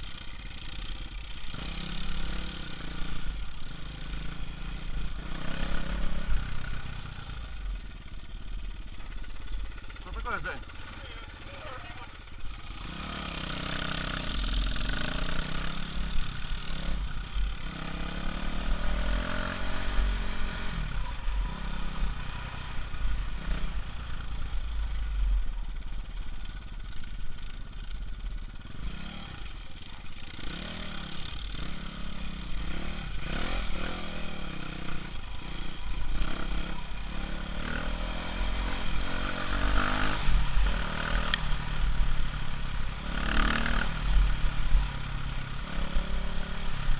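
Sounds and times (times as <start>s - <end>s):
off-road bike engine revving: 0.0s - 46.9s.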